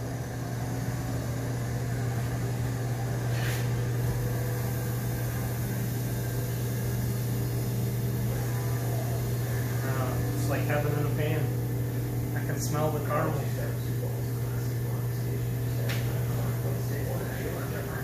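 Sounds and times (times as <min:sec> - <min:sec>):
kitchen machinery humming: 0:00.0 - 0:18.0.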